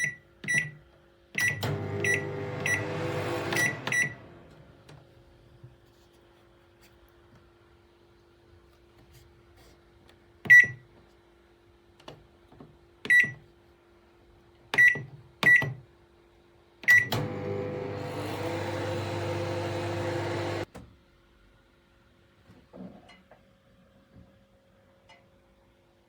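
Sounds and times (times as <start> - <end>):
microwave beeping: 0.0 - 0.8, 1.4 - 4.7, 16.8 - 20.7
microwave running hum: 0.0 - 5.6, 16.8 - 20.7.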